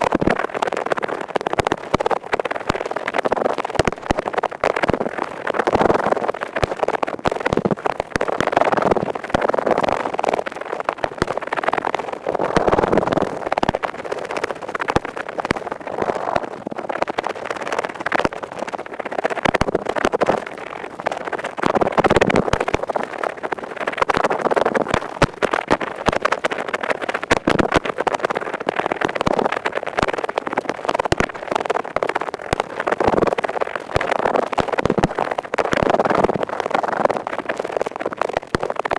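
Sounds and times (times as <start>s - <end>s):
ear pick scratching: 12.1s - 16.6s.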